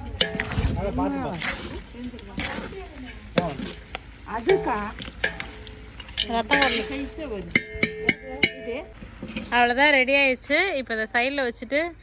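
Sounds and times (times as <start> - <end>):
metal ladle scraping a pan: 0.0 - 10.1
voices talking: 0.0 - 12.0.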